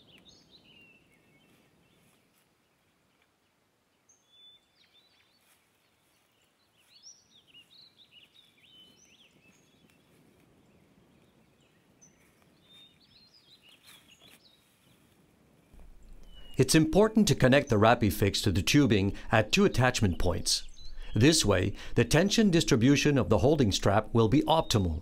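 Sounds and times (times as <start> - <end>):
soft low rustle: 1.4 - 3.2, 5.3 - 7.0, 7.6 - 11.4, 12.0 - 16.6
birds chirping and whistling: 15.8 - 25.0.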